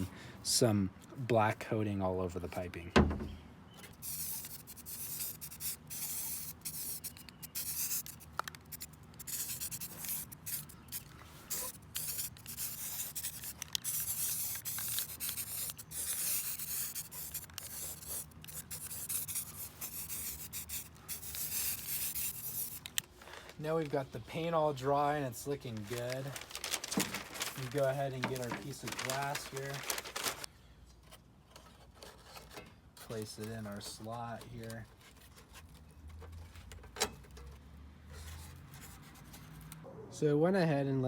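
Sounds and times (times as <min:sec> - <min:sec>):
spray paint can hissing: 0:04.0 - 0:22.9.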